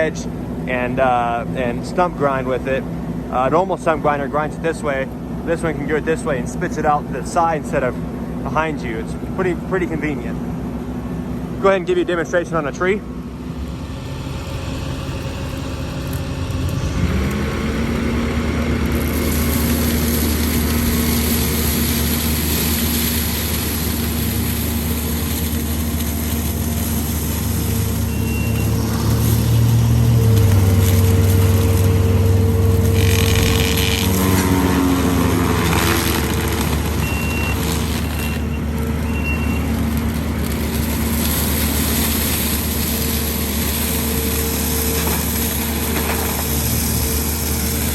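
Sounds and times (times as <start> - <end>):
skid steer engine revving: 11.3 - 47.9
mulcher shredding tree: 11.5 - 47.9.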